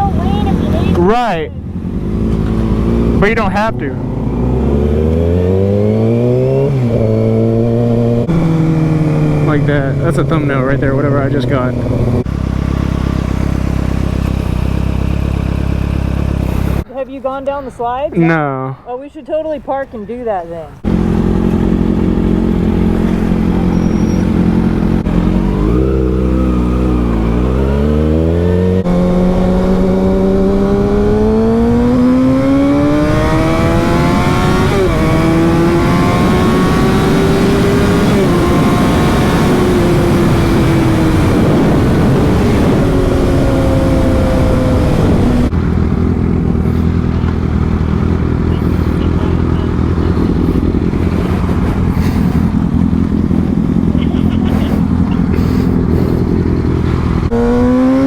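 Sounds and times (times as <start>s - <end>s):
motorcycle engine accelerating: 0.0s - 16.9s, 20.8s - 58.0s.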